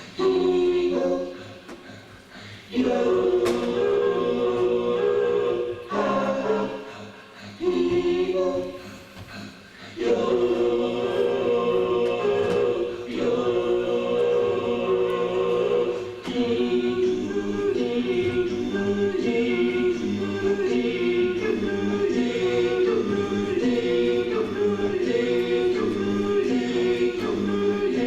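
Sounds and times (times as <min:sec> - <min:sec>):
choir singing: 0:00.0 - 0:28.0
singers breathing: 0:01.2 - 0:02.8, 0:06.5 - 0:10.2.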